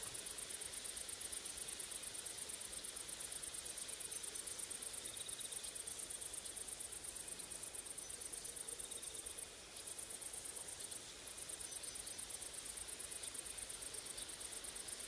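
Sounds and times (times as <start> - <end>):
grasshoppers and crickets chirping: 0.0 - 15.0.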